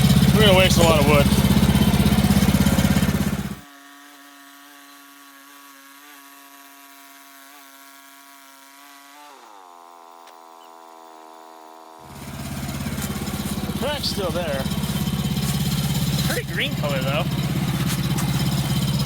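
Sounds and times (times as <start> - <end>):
sawmill gas engine running: 0.0 - 3.6, 9.6 - 19.0.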